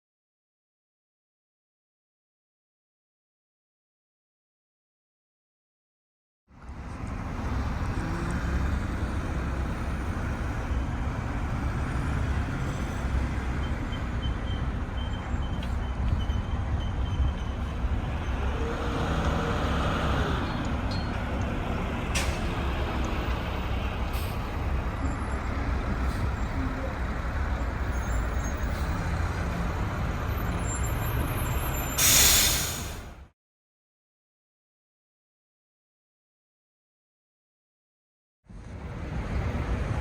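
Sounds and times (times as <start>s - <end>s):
diesel truck engines rumbling: 6.5s - 33.3s, 38.5s - 40.0s.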